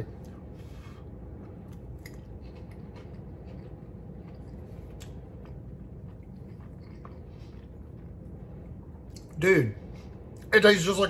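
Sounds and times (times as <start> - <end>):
person chewing: 0.0 - 9.4
low background hum: 0.0 - 11.0.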